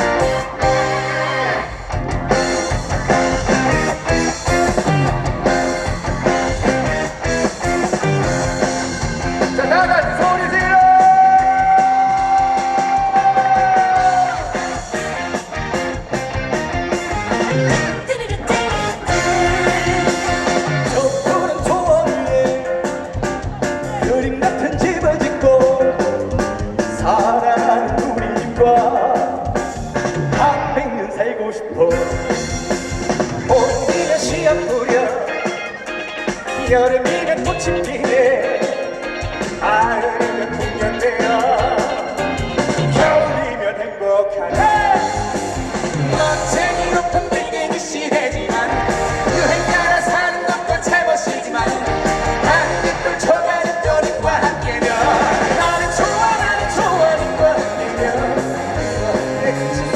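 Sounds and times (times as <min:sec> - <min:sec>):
live band music with electric guitar: 0:00.0 - 0:59.9
fast steady drum beat: 0:01.7 - 0:30.8, 0:31.9 - 0:43.5, 0:44.5 - 0:59.9
person singing: 0:09.6 - 0:14.9, 0:17.4 - 0:29.6, 0:33.5 - 0:59.9.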